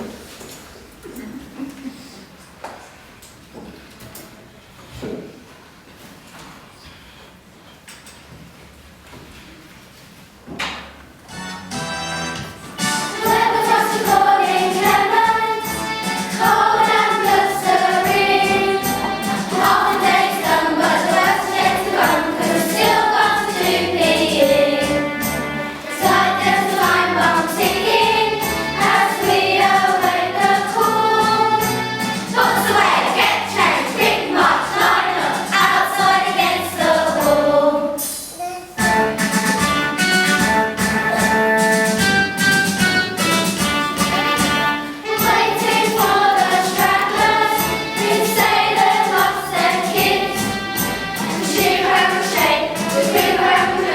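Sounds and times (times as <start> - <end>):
instrumental accompaniment: 11.3 - 53.9
children singing: 12.9 - 38.2, 44.1 - 53.9.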